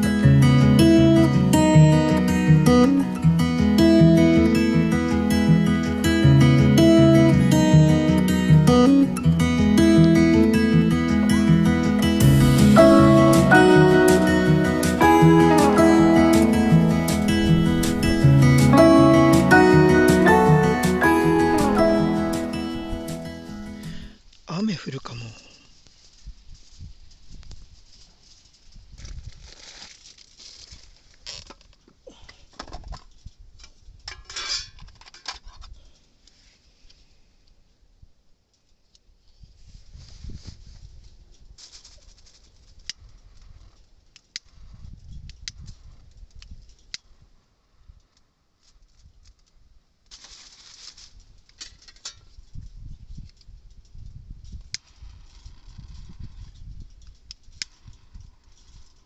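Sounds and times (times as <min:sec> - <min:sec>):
rustling with clatter and clicks: 0:25.7 - 0:37.1, 0:48.0 - 0:59.0
wind rumble on microphone: 0:26.2 - 0:28.0, 0:39.4 - 0:41.6, 0:44.5 - 0:46.8, 0:52.3 - 0:58.9.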